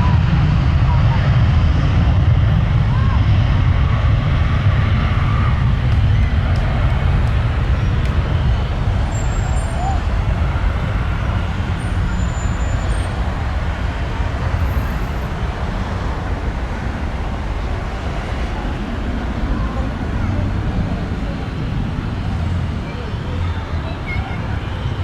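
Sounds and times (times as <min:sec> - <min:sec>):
jet engine roar: 0:00.0 - 0:25.0.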